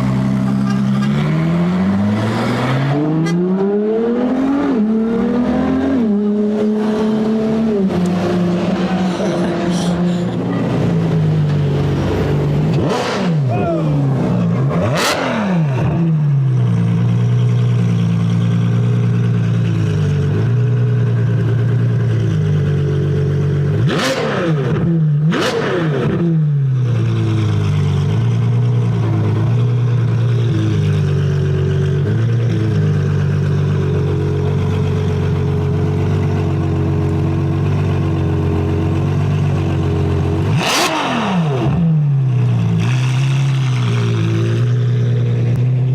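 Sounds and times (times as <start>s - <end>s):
car engine running at low revs: 0.0s - 45.9s
fast cars rushing past: 1.1s - 13.5s.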